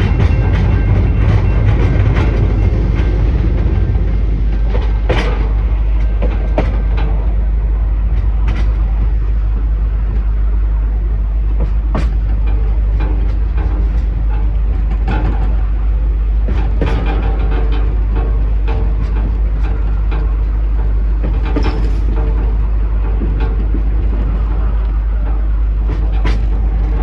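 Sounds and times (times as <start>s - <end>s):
train clanks and clicks: 0.0s - 27.0s
train low rumble: 0.0s - 27.0s.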